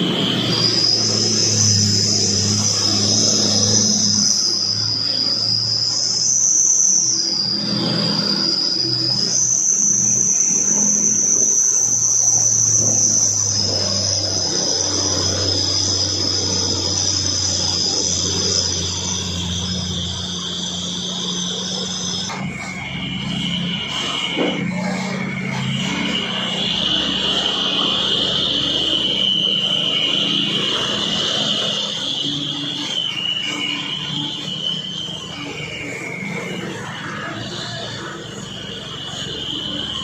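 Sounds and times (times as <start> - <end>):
high-pitched shrill whine: 0.0 - 40.0
truck engine humming: 12.5 - 40.0.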